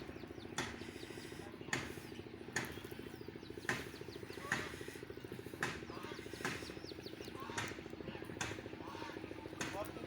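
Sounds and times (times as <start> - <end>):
birds chirping: 0.0 - 10.0
small engine running: 0.0 - 10.0.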